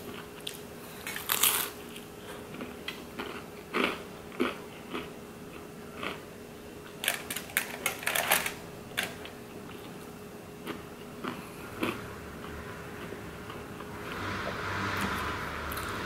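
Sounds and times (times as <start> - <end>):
crisp chewing crunches: 0.0 - 6.2.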